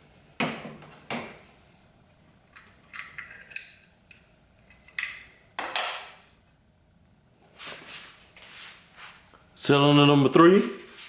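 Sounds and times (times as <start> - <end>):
metal tools clinking and clattering: 2.6 - 6.1.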